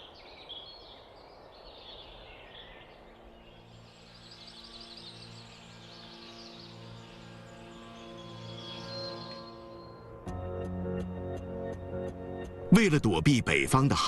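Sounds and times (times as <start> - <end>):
faint bird chirps and calls: 0.0 - 10.1.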